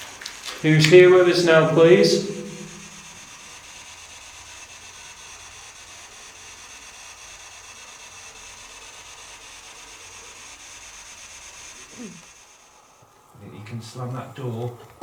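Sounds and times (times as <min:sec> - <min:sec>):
low hum: 0:00.7 - 0:03.1.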